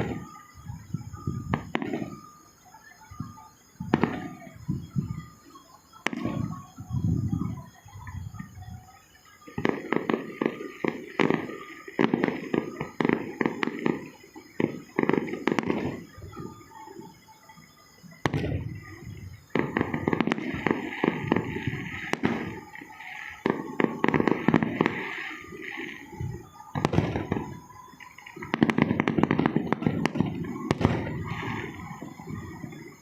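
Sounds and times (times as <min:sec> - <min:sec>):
rapid crackling and popping: 0:09.3 - 0:33.0.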